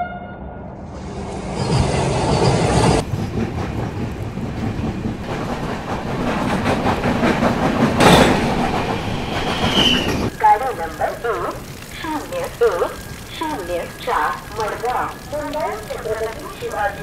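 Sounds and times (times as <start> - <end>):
train wheels clattering over rails: 1.8 - 10.3
rush of air: 5.2 - 10.3.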